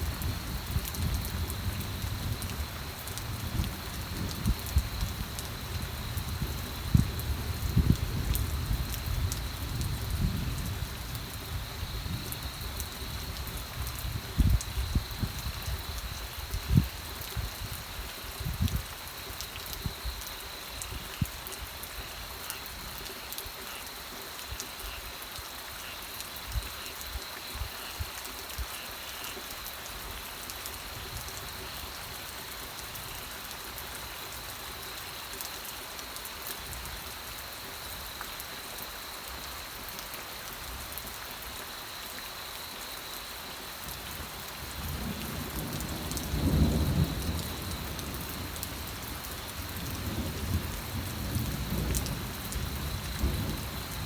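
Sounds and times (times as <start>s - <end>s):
low rumble of thunder: 0.0s - 18.9s, 44.1s - 54.0s
steady rain falling: 0.0s - 54.0s
raindrops ticking: 43.8s - 54.0s.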